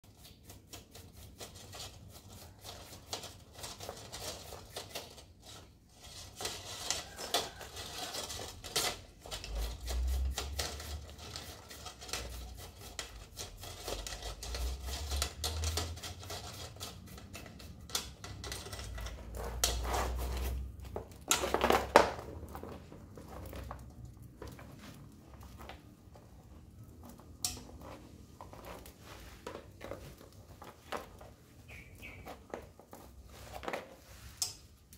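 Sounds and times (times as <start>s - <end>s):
small metal tools clattering: 2.7s - 24.7s.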